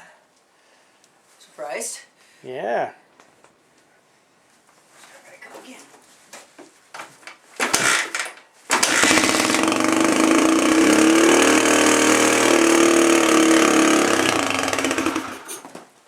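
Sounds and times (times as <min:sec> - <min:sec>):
motorcycle engine starting and running: 0:07.6 - 0:15.6.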